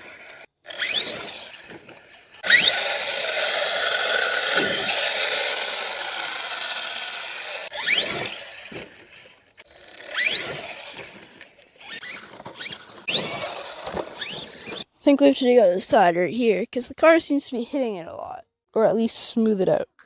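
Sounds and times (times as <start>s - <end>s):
toy car motor whining: 0.0s - 15.0s.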